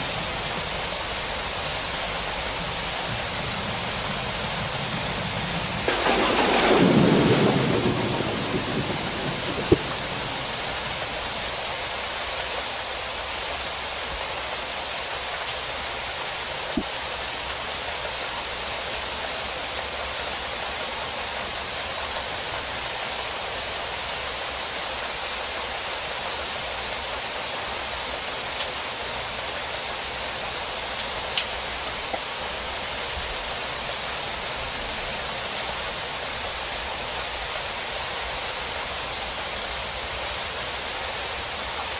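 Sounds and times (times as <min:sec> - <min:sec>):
steady rain hiss: 0:00.0 - 0:41.9
thunder rumble: 0:02.0 - 0:12.0.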